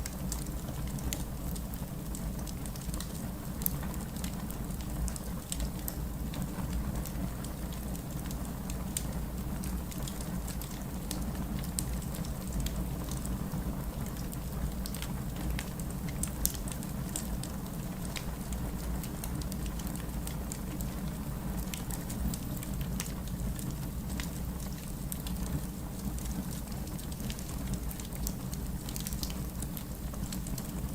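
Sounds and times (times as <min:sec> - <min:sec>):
campfire crackling: 0:14.0 - 0:30.9.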